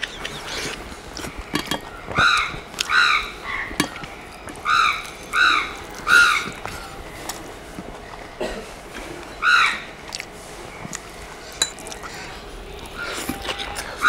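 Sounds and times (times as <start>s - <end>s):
bird calling: 0.0s - 7.2s
faint eating clicks: 10.0s - 14.0s.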